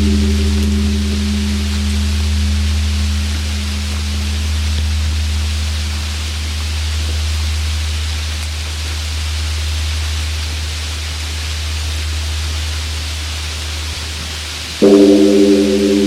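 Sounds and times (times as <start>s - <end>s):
large temple bell humming: 0.0s - 6.4s, 14.8s - 16.0s
rain hiss: 0.0s - 16.0s.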